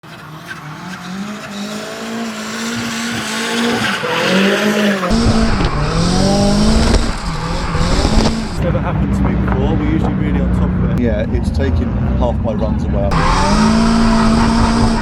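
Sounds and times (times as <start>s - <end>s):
car engine revving hard: 0.0s - 11.0s, 13.1s - 15.0s
heavy low rumble: 5.1s - 15.0s.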